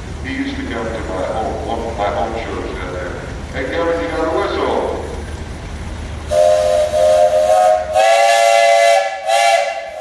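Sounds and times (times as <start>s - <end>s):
steam whistle blowing: 6.3s - 10.0s.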